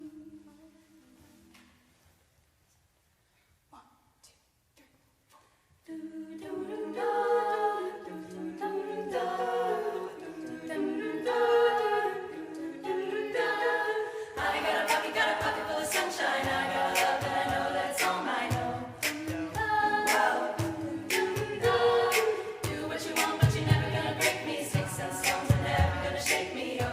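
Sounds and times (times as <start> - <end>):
a cappella group singing chords: 0.0 - 1.9, 5.3 - 26.9
sharp percussive beat: 14.6 - 26.9.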